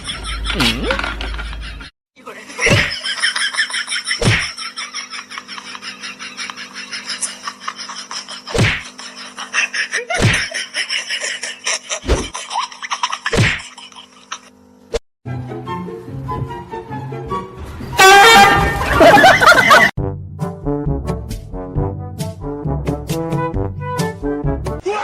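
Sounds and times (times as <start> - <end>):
loud sharp smacks: 8.6 - 8.8.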